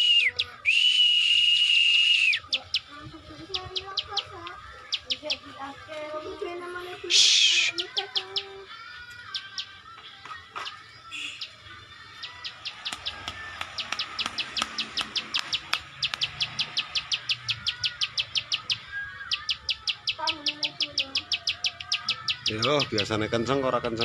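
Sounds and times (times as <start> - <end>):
soft warbled bird notes: 0.0 - 5.5, 10.6 - 23.3
songbird clicking song: 2.4 - 5.4, 7.5 - 11.6, 12.2 - 23.2.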